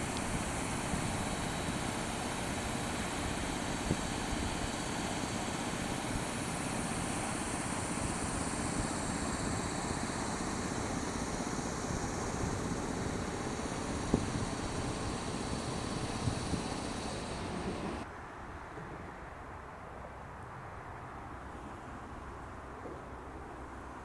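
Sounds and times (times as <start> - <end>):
freight train rumbling past: 0.0 - 18.1.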